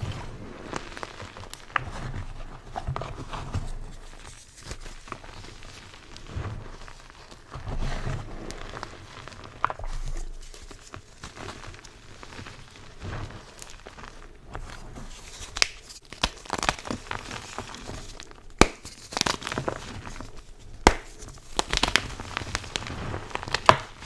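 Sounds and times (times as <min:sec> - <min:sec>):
chalk crunching and crumbling: 0:00.1 - 0:24.0
sharp snap: 0:18.6 - 0:19.0, 0:20.9 - 0:21.2.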